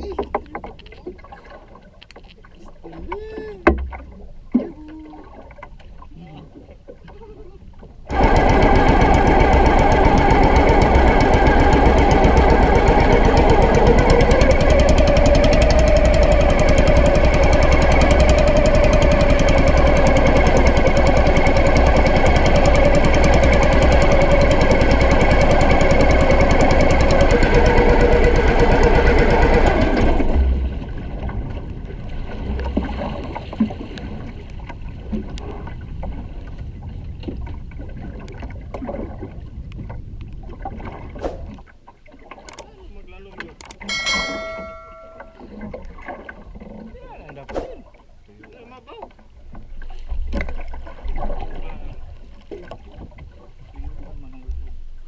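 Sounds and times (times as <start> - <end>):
water sounds: 0.0 - 55.0
engine running loudly: 8.1 - 30.8.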